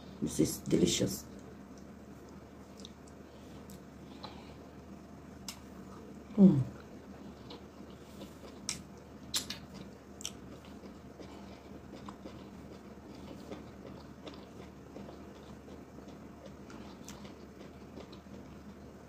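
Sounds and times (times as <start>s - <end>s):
wet chewing mouth sounds: 1.8s - 4.4s, 6.7s - 18.9s
sharp mouth clicks: 8.6s - 9.6s.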